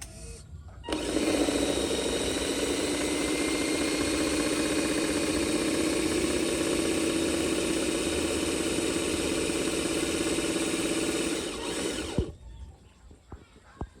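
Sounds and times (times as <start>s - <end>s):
toy vehicle motor drone: 0.0s - 12.4s.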